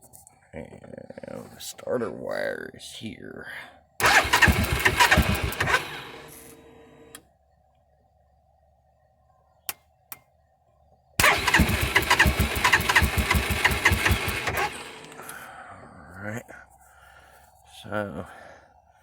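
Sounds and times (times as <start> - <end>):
engine cranking by starter motor: 4.0 - 7.2, 11.2 - 15.5.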